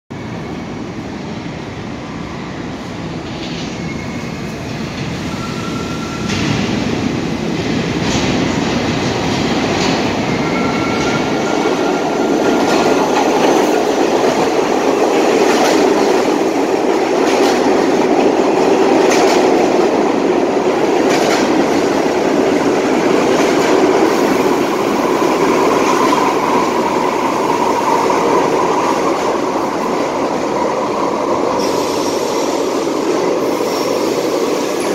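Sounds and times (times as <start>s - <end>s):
subway train rumble: 0.1s - 34.9s
wheels clacking over rail joints: 12.4s - 20.0s.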